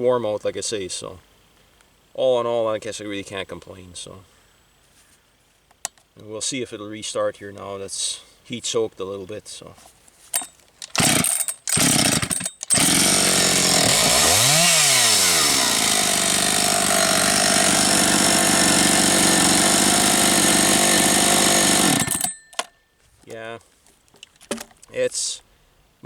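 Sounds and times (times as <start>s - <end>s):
chainsaw engine idling: 10.4s - 22.6s
chainsaw starter pull rasps: 10.4s - 22.7s.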